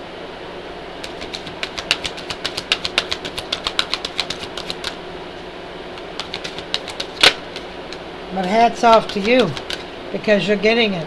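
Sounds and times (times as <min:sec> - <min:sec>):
steady low hum: 0:00.0 - 0:11.0
cards being shuffled: 0:01.0 - 0:05.0, 0:06.0 - 0:09.9.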